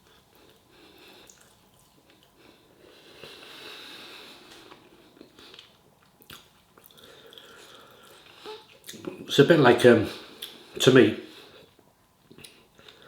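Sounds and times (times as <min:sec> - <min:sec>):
person chewing food: 0:00.0 - 0:09.2
breathing through the nose: 0:02.4 - 0:04.7.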